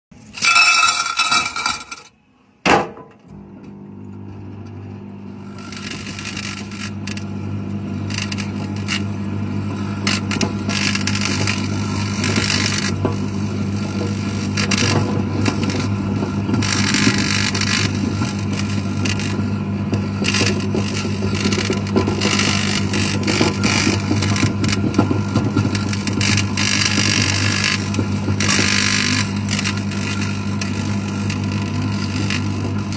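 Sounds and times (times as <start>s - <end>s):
microwave oven humming: 2.1s - 32.9s
microwave oven clunk: 2.6s - 32.9s
metal arcing and sparking: 8.0s - 19.4s.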